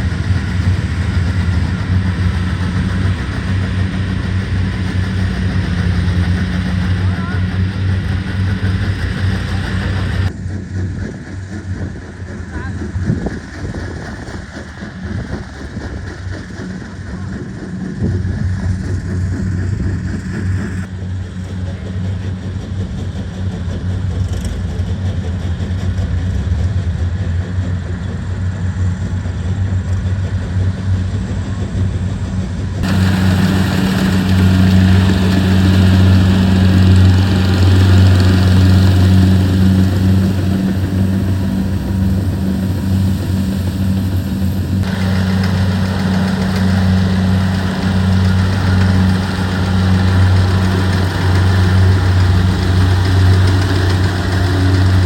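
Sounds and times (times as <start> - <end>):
threshing machinery noise: 0.0 - 10.5, 28.4 - 55.0
combine harvester engine drone: 0.0 - 55.0.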